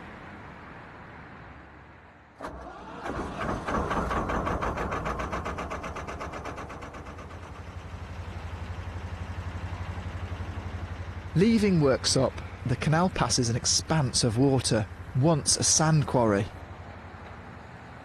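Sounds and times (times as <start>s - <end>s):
diesel engine starting and idling: 2.4s - 16.5s.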